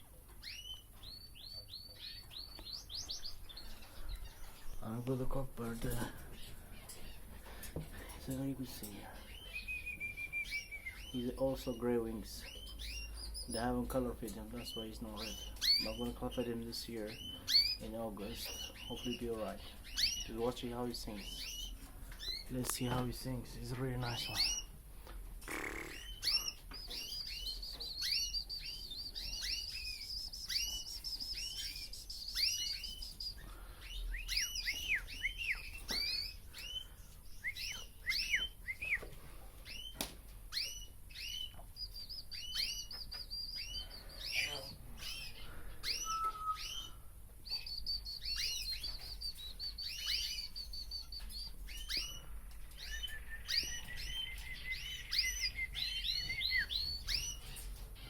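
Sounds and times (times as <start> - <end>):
canary chirping: 0.0 - 24.8, 25.4 - 58.0.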